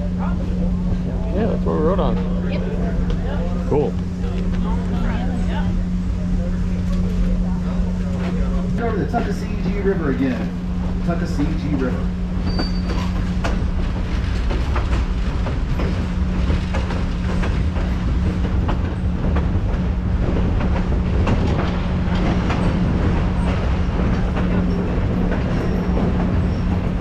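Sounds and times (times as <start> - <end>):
train running rumble: 0.0 - 27.0
wheels clicking over rail joints: 11.0 - 27.0.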